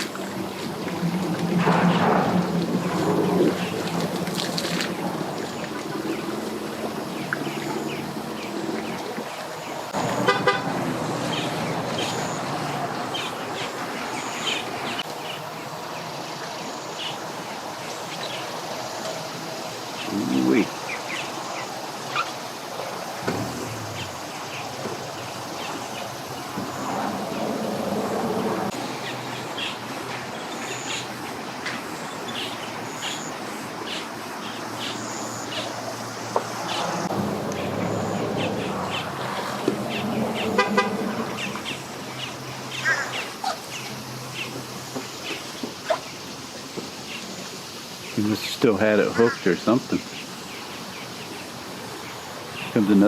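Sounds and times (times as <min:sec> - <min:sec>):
motor droning hum: 0:23.2 - 0:25.7.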